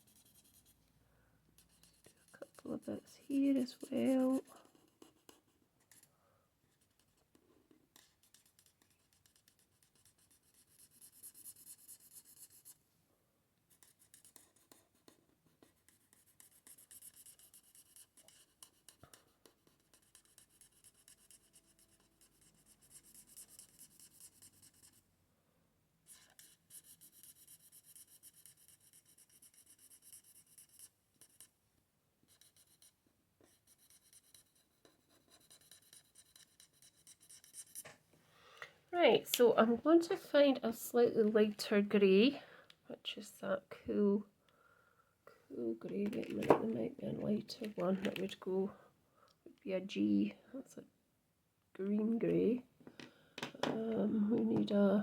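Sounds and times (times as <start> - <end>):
marker scratching on paper: 0.0 - 0.8, 1.6 - 6.1, 6.7 - 12.8, 13.7 - 25.0, 26.0 - 31.5, 32.3 - 37.9.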